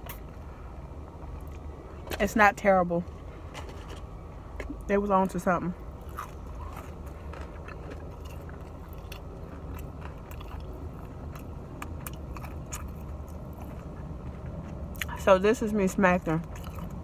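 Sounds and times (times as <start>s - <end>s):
low hum: 0.0s - 17.0s
person chewing with mouth smacking: 6.0s - 15.2s, 16.4s - 17.0s.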